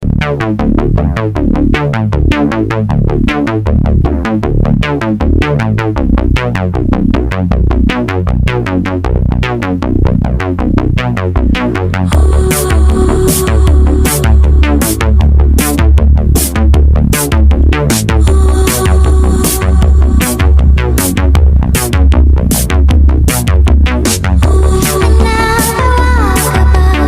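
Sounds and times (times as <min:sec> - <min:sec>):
heavy bass line: 0:00.0 - 0:27.0
repeating synthesizer notes: 0:10.0 - 0:27.0
drums and cymbals: 0:12.2 - 0:27.0.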